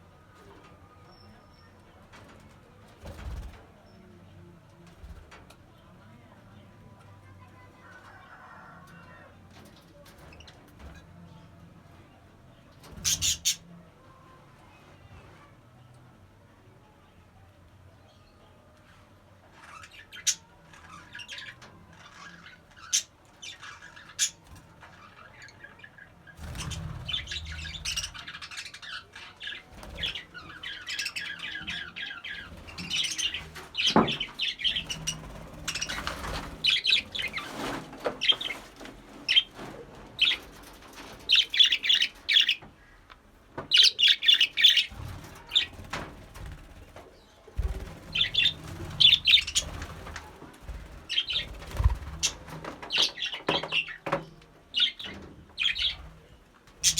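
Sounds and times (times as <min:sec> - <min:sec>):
budgerigars chirping and warbling: 0:12.9 - 0:13.6, 0:19.6 - 0:38.7, 0:40.2 - 0:42.9, 0:43.7 - 0:46.0, 0:47.6 - 0:54.1, 0:54.7 - 0:56.9.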